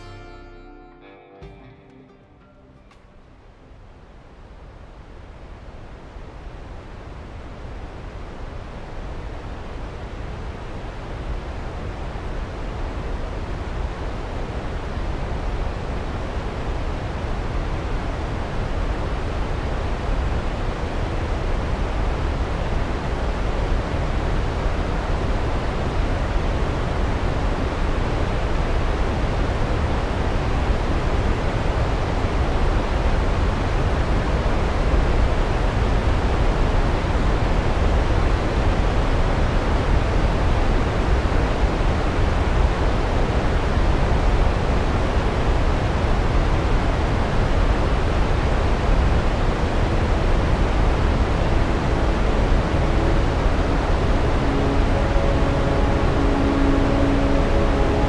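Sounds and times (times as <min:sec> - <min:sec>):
waterfall rushing: 0:46.3 - 0:58.0.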